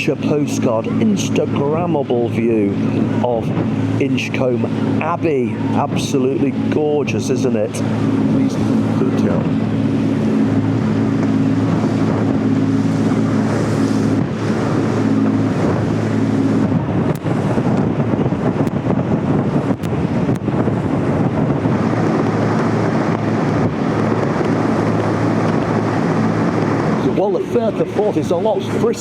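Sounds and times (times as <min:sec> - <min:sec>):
boat engine drone: 0:00.0 - 0:29.0
water rushing along hull: 0:00.0 - 0:29.0
wind buffeting microphone: 0:00.0 - 0:29.0.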